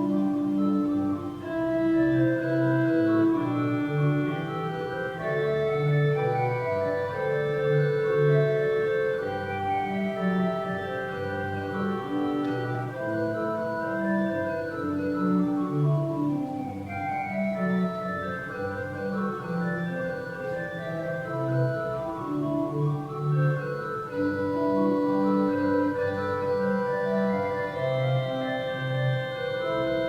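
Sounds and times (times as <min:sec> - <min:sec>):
organ chords: 0:00.0 - 0:30.0.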